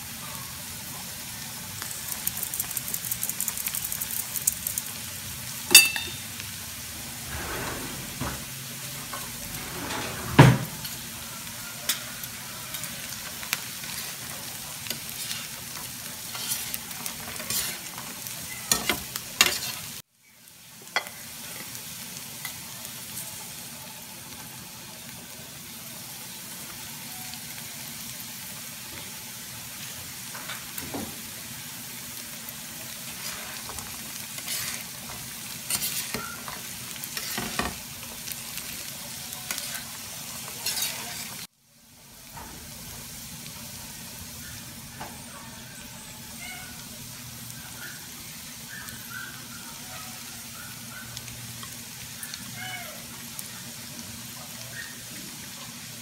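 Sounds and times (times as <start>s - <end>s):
food sizzling in a pan: 0.0s - 56.0s
metal spatulas scraping a pan: 7.0s - 11.1s, 16.2s - 17.9s, 18.6s - 19.9s, 33.1s - 37.8s, 39.5s - 41.4s.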